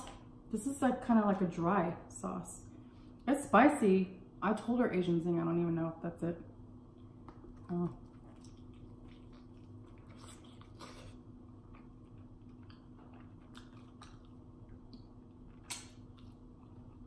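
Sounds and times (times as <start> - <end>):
person chewing chicken wing: 8.1 - 17.0.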